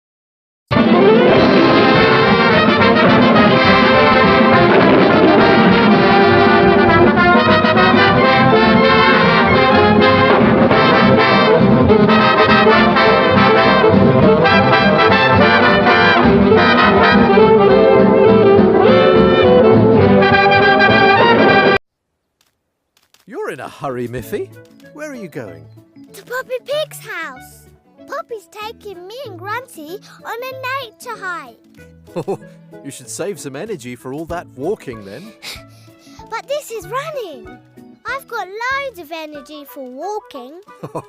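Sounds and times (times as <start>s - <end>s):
brass instrumental music: 0.7s - 21.8s, 23.3s - 28.4s, 31.9s - 36.2s.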